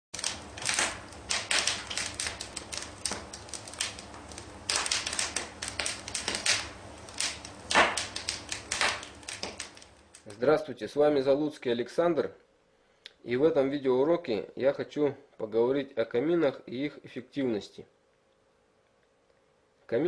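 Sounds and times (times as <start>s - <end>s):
wood fire crackling: 0.1s - 10.6s.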